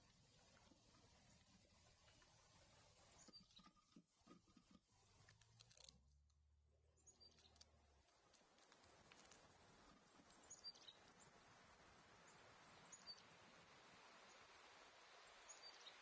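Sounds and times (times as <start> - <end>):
small birds chirping: 3.0 - 3.8, 7.0 - 7.7, 10.1 - 11.4, 15.3 - 16.0.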